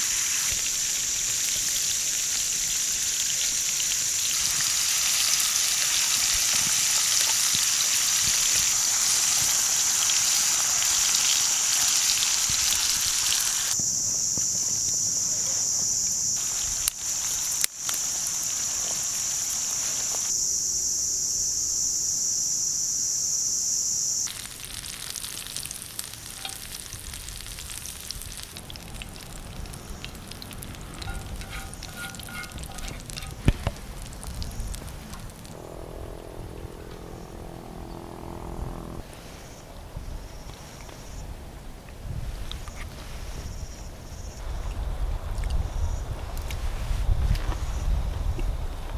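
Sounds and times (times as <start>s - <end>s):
food sizzling in a pan: 0.0s - 13.8s, 24.2s - 35.5s.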